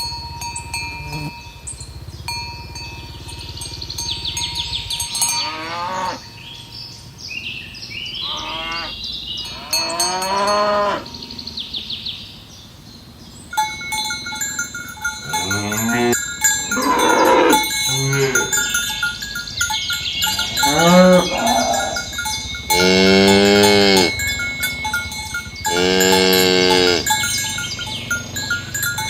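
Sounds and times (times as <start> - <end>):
metallic ringing of cowbells: 0.0 - 7.2, 9.4 - 12.0, 13.5 - 29.0
cows mooing: 1.0 - 1.4, 3.1 - 6.6, 8.2 - 11.6, 15.2 - 19.1, 20.0 - 29.0.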